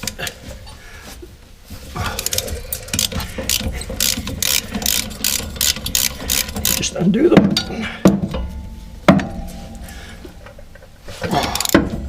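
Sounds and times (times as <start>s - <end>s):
socket ratchet clicking: 2.3s - 6.9s.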